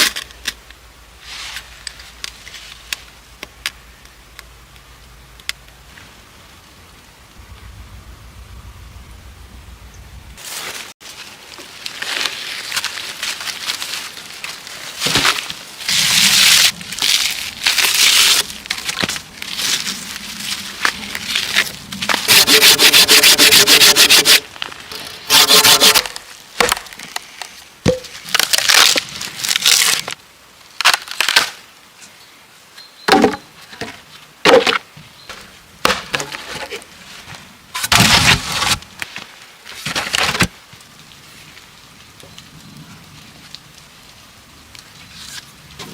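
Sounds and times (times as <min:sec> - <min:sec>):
rasping sawing strokes on wood: 0:22.3 - 0:24.4, 0:25.3 - 0:26.1
wood cracks and knocks: 0:26.0 - 0:27.2, 0:37.8 - 0:40.6.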